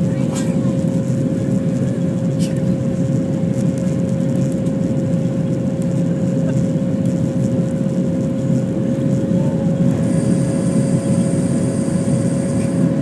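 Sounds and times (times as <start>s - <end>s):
jet engines roaring: 0.0s - 13.0s
steady hum tone: 4.8s - 13.0s.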